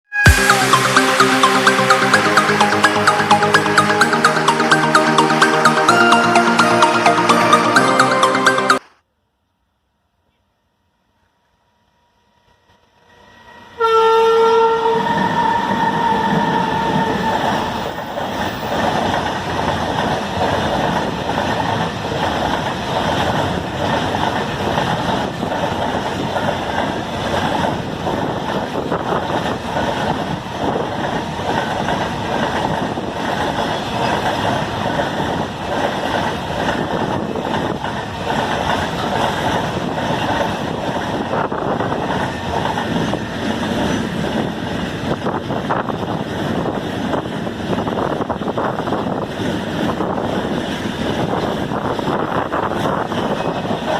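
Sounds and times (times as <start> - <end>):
locomotive horn blast: 13.8 - 17.8
freight train rumble and wheel clatter: 13.9 - 53.9.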